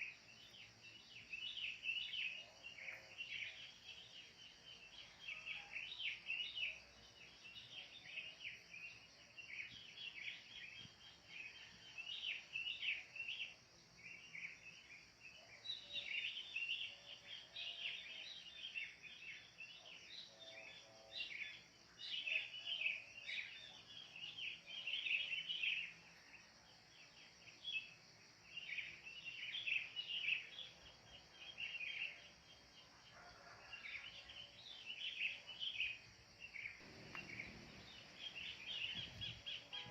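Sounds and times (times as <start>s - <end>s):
birds chirping and chattering: 36.5s - 39.9s
steady high hiss: 36.8s - 39.9s.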